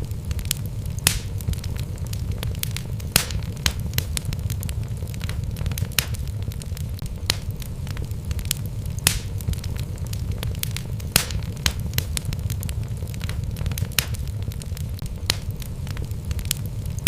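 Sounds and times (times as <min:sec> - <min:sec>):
fire low rumble: 0:00.0 - 0:17.0
logs crackling and popping: 0:00.0 - 0:17.0.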